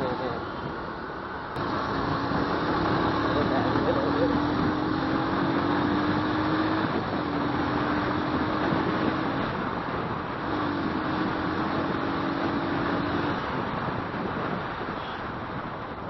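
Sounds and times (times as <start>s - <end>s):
wind and road noise: 0.0s - 16.0s
motorcycle engine: 1.6s - 9.6s.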